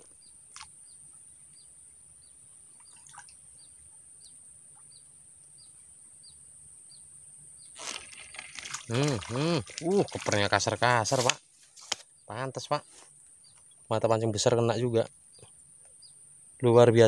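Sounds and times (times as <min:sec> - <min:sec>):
small bird chirping: 0:00.0 - 0:11.2, 0:12.0 - 0:16.7.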